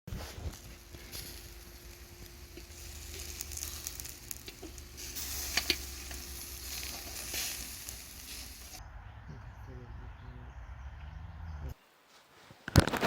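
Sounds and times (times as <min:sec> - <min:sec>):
meat sizzling over hot coals: 0:00.1 - 0:08.8.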